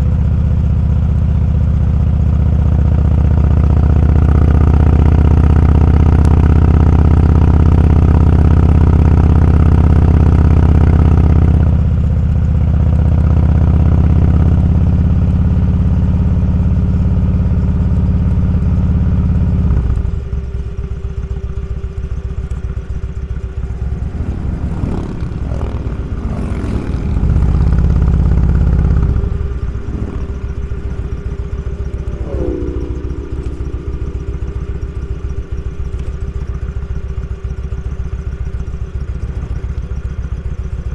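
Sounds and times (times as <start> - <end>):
motorcycle engine running: 19.9 - 40.5.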